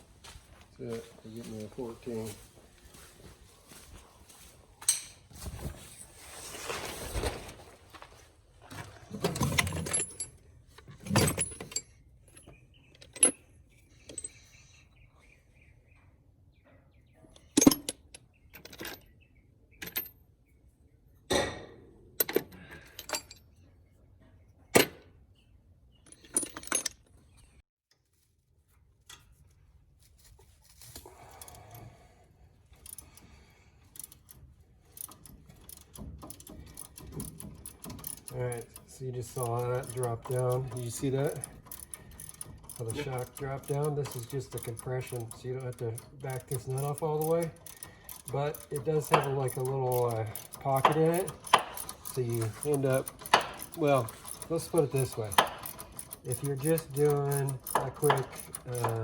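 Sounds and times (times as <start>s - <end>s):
metal hand tools clanking: 35.0s - 59.0s.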